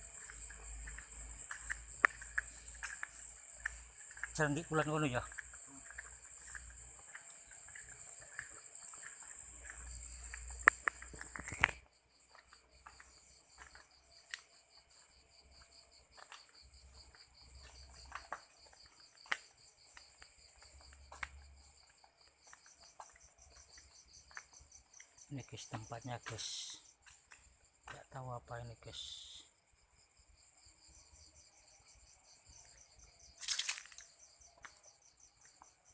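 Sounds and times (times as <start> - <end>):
crickets chirping: 0.0 - 35.9
sharp clicks and snaps: 10.6 - 11.8.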